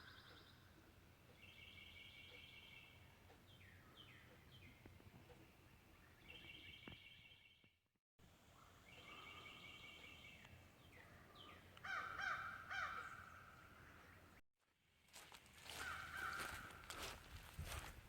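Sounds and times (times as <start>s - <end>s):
birds calling: 1.3s - 7.4s, 8.4s - 14.4s, 15.7s - 17.2s.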